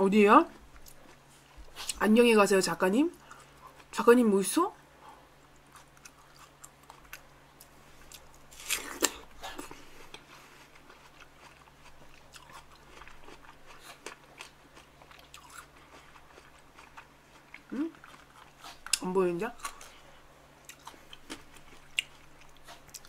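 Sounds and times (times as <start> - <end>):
chewing watermelon: 5.4 - 19.0, 19.6 - 23.0.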